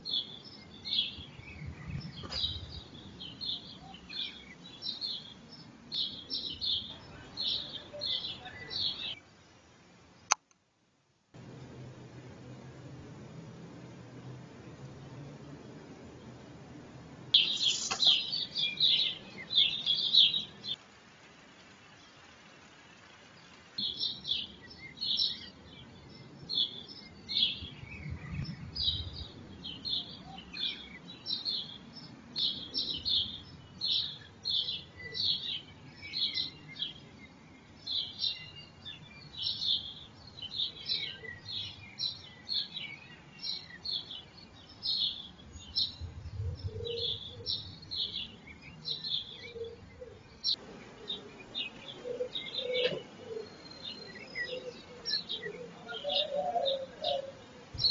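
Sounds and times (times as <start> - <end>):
faint low rumble: 11.4 - 20.8, 44.6 - 52.6
small bird chirping: 17.3 - 20.8.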